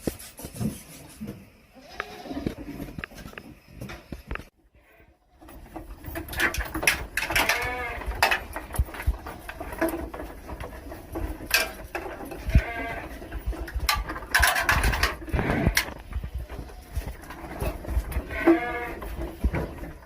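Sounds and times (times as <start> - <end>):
goats bleating: 1.8 - 2.6, 7.2 - 8.3, 12.2 - 13.4, 15.2 - 16.0, 18.1 - 19.2.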